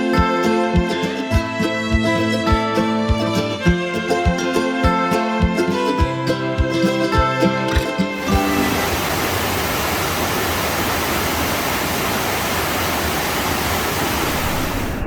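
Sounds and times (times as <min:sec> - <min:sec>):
stream water rushing: 0:08.2 - 0:15.0.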